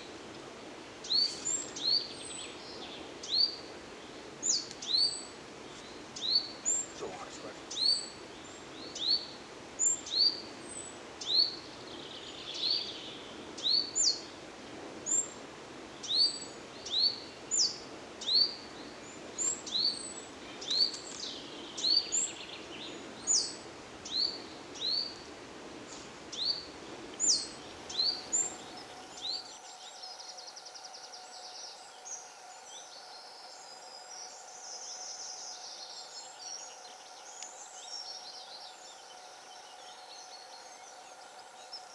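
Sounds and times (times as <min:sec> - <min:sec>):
faint steady hum: 0:00.0 - 0:13.6, 0:26.9 - 0:41.9
outdoor background noise: 0:00.0 - 0:41.9
bird chirping: 0:27.3 - 0:41.9.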